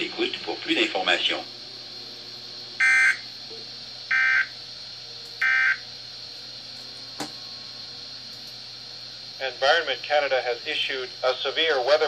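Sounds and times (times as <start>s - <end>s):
radio hiss: 0.0s - 1.6s, 9.4s - 12.0s.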